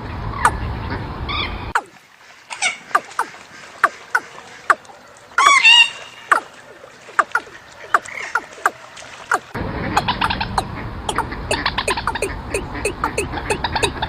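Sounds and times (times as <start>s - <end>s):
bird chirping: 9.3s - 14.0s.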